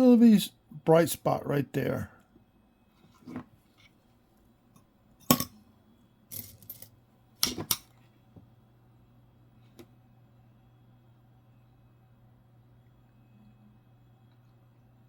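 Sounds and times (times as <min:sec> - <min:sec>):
metal coins clicking and scraping: 0:06.3 - 0:07.8.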